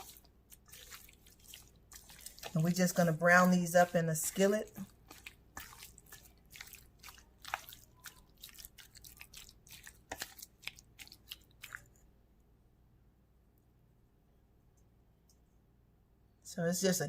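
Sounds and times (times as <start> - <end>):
wet squishing of raw meat: 0.0 - 12.1.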